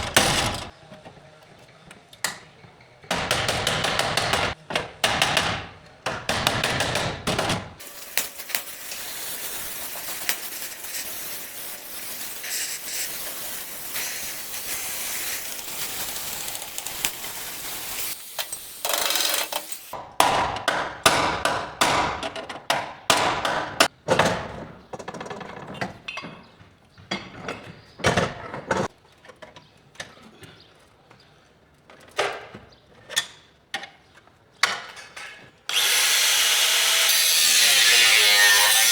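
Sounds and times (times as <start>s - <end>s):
steady hiss: 7.8s - 20.0s.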